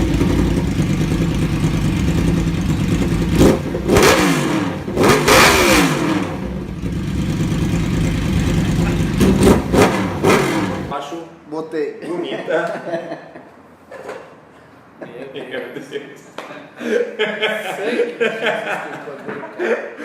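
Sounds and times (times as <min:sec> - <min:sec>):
motorcycle engine idling and revving: 0:00.0 - 0:11.0.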